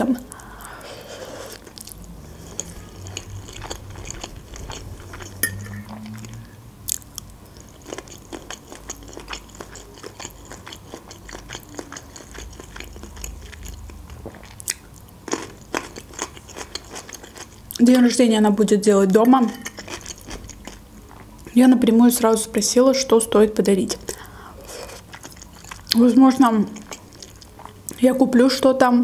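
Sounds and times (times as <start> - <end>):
person chewing with mouth clicks: 0.2 - 17.9, 24.0 - 26.0, 26.6 - 28.0.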